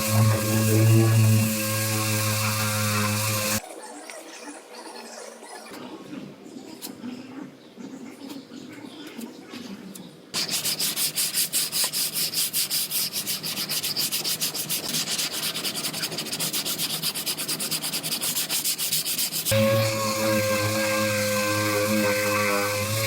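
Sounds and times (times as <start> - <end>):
hand sanding car panel: 0.0 - 3.6, 10.4 - 23.0.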